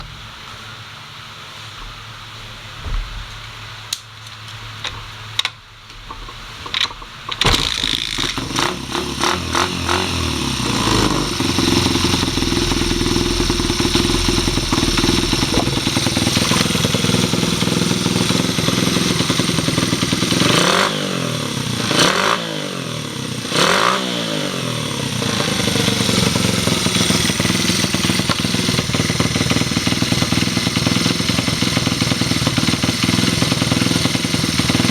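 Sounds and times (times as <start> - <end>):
starter clunks: 4.9 - 8.9
engine starting and idling: 7.3 - 21.6
engine revving: 7.7 - 29.4.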